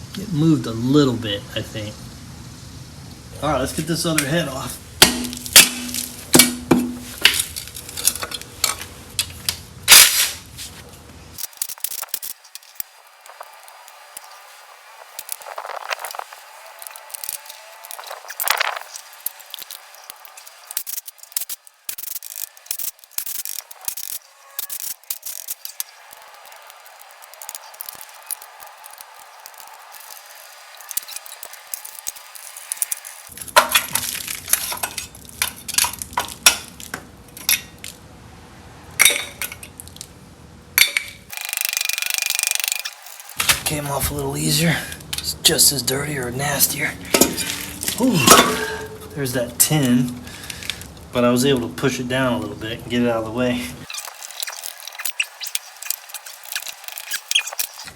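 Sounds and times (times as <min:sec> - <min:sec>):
metal engine parts clinking: 0:05.0 - 0:10.0, 0:40.8 - 0:43.5, 0:47.1 - 0:49.2.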